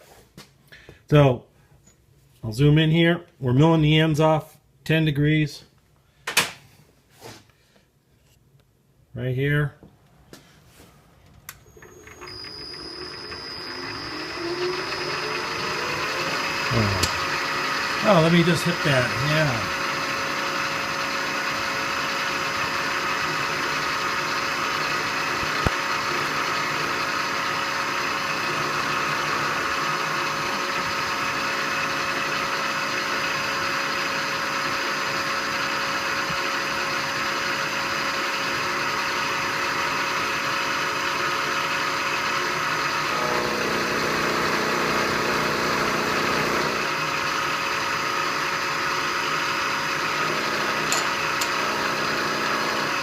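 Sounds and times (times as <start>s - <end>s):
milling machine cutting steel: 12.0s - 21.1s, 42.9s - 47.5s, 49.9s - 53.0s.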